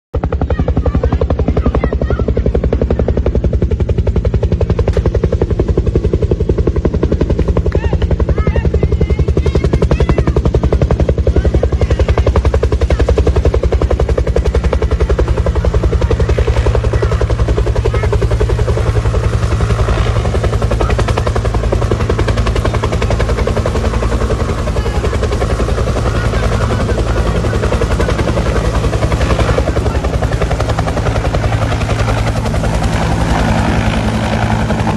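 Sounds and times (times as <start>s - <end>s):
helicopter engine drone: 0.2s - 34.9s
helicopter rotor chop: 0.2s - 34.9s.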